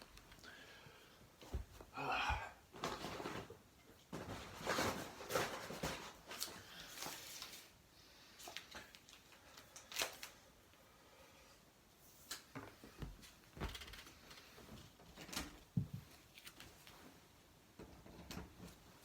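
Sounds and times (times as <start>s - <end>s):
rustling: 2.7s - 10.4s.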